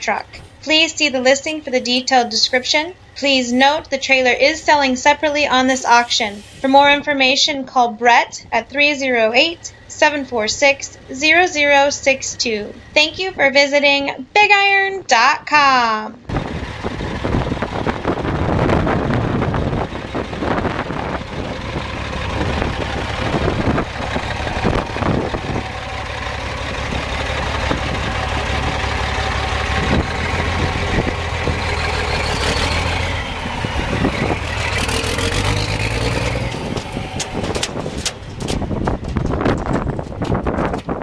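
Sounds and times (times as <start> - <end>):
diesel truck engine running: 0.0 - 15.4, 16.2 - 41.0
engine revving: 16.3 - 40.7.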